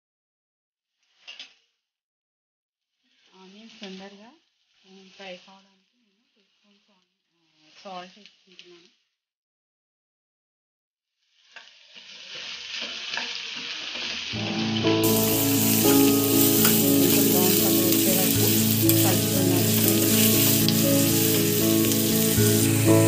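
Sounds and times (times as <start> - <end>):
vegetables sizzling in oil: 11.2 - 23.0
held low tones: 14.4 - 23.0.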